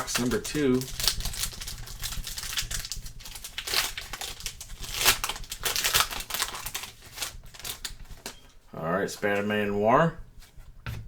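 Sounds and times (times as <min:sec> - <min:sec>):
card pack wrapper tearing and crinkling: 0:00.0 - 0:08.4.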